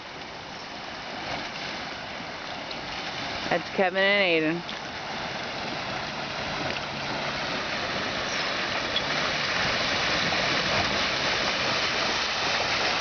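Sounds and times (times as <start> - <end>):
creek water rushing and sloshing: 0.0 - 13.0.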